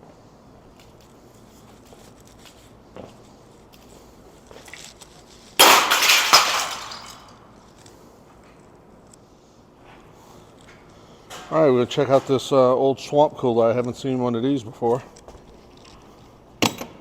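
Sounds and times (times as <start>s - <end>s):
loud crash and clatter: 5.6s - 7.4s.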